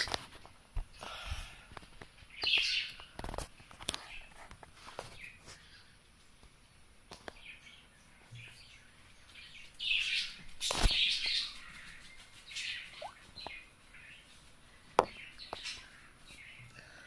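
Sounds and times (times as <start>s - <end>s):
birds chirping: 2.2s - 3.2s, 7.3s - 17.0s.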